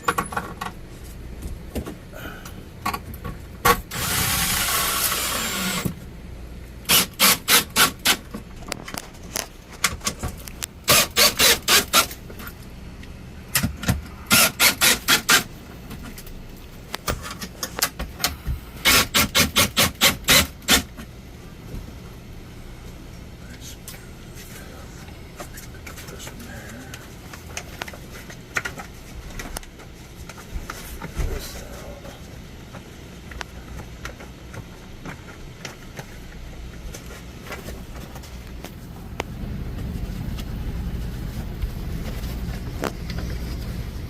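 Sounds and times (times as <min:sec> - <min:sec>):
tool hiss: 0:03.9 - 0:05.9, 0:10.9 - 0:12.1, 0:14.3 - 0:15.5
rapid tool clicks: 0:06.8 - 0:08.3, 0:10.8 - 0:12.2, 0:14.3 - 0:15.5, 0:18.8 - 0:20.9.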